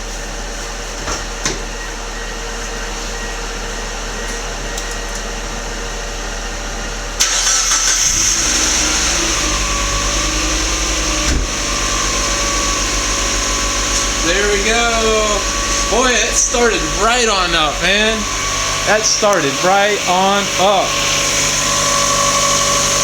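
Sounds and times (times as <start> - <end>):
car engine cranking and idling: 7.2 - 23.0
steady hum: 9.0 - 23.0.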